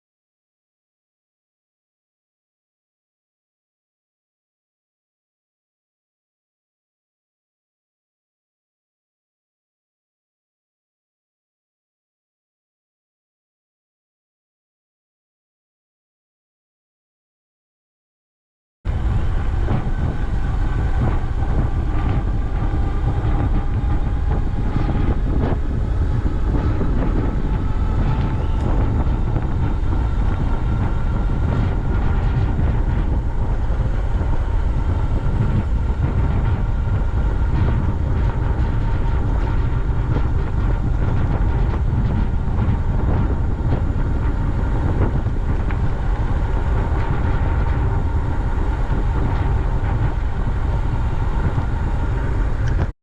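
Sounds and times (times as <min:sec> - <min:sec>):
bicycle rolling rumble: 0:18.9 - 0:52.9
faint rising whine: 0:18.9 - 0:52.9
wind noise: 0:18.9 - 0:53.0.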